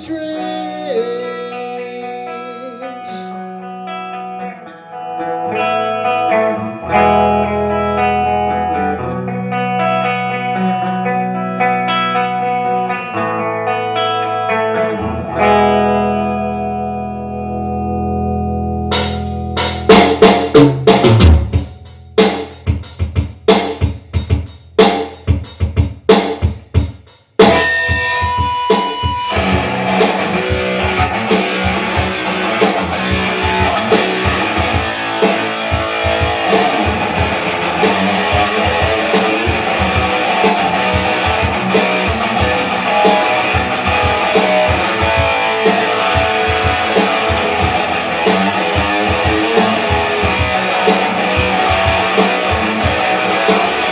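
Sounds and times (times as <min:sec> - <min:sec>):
drums: 0:00.0 - 0:03.4, 0:18.9 - 0:53.9
distorted electric guitar: 0:00.0 - 0:22.5, 0:27.4 - 0:53.9.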